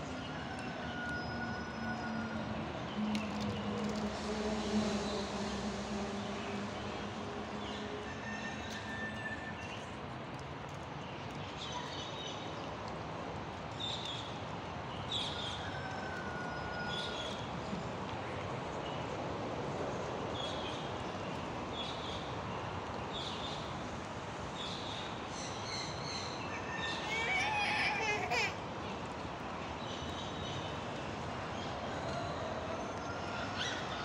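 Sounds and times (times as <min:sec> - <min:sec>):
steady rushing background noise: 0:00.0 - 0:11.6.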